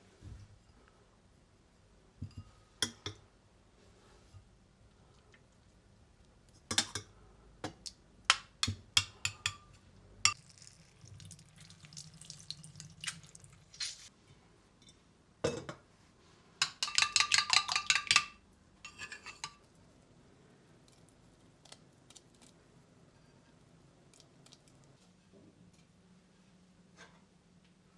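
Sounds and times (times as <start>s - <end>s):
dishes and cutlery clinking: 16.6s - 19.6s.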